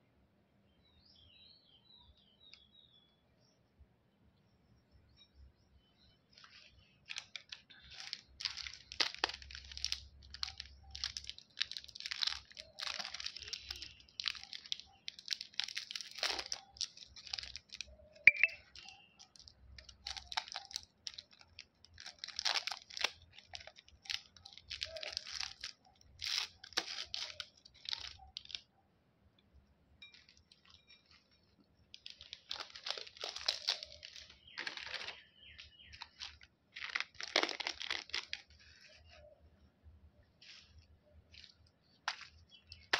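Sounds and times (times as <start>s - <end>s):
candy wrappers crinkling: 6.3s - 18.0s, 18.6s - 28.7s, 30.0s - 39.2s, 40.4s - 42.9s.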